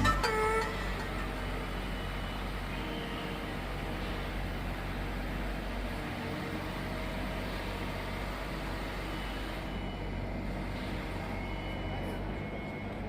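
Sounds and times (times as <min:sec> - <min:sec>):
crane power unit humming: 0:00.0 - 0:13.0.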